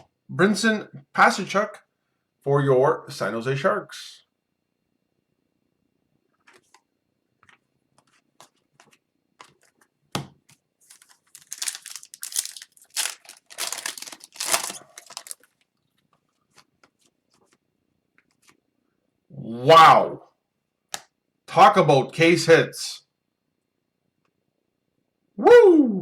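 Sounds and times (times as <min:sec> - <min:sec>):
cards being handled: 0:06.4 - 0:15.6
foil wrapper tearing and crinkling: 0:10.8 - 0:15.6.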